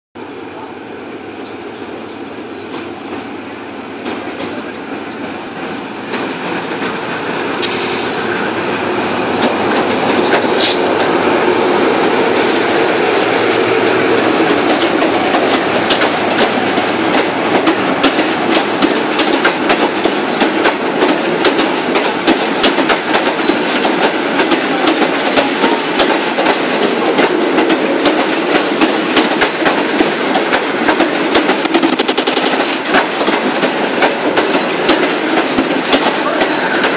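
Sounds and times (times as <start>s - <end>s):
diesel locomotive engine: 0.2s - 36.9s
wheels clattering over rail joints: 9.3s - 36.9s.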